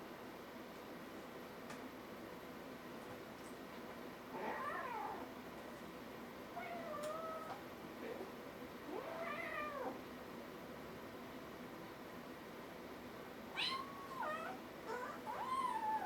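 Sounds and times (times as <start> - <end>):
kitten meowing: 13.6 - 16.0.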